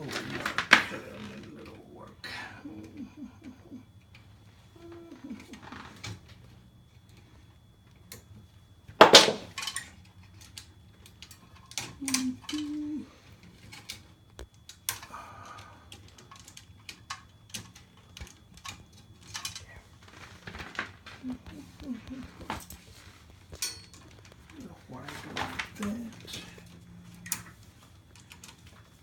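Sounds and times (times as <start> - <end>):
tools clicking and tapping: 23.5 - 24.5.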